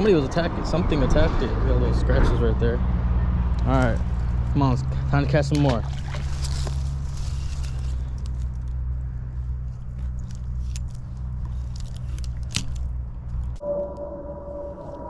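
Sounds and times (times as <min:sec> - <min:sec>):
crackles and crunches: 0:06.0 - 0:13.6
steady low rumble: 0:06.8 - 0:15.0
steady hum-like tone: 0:13.6 - 0:15.0.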